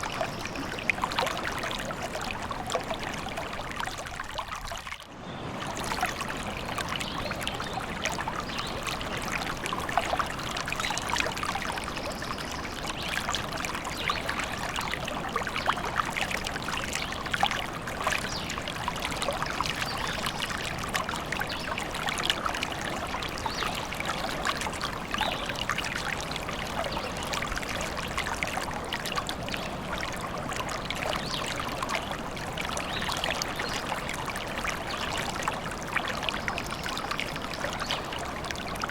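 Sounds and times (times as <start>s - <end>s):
small stream babbling: 0.0s - 38.9s.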